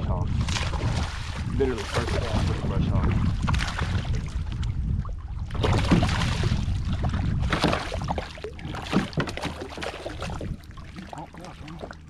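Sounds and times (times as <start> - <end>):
wind rumble on microphone: 0.0 - 12.0
water splashing at a kayak: 0.3 - 12.0.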